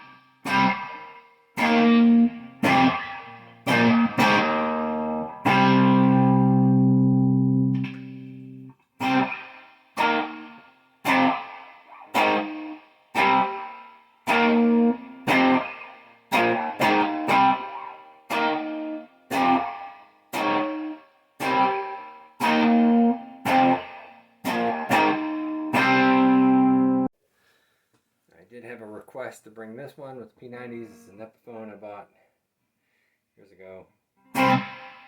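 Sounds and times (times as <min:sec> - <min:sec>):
electric guitar chords: 0:00.0 - 0:27.1, 0:34.3 - 0:35.0.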